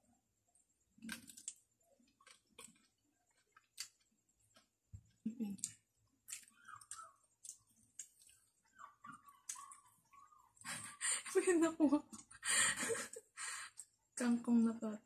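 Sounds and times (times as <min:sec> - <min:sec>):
wet mouth clicks and lip smacks: 0:09.0 - 0:09.8.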